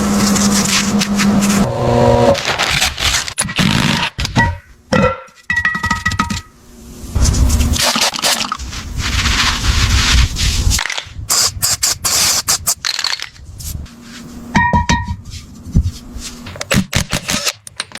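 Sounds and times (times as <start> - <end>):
hand tool scraping and rubbing: 0.0 - 4.1.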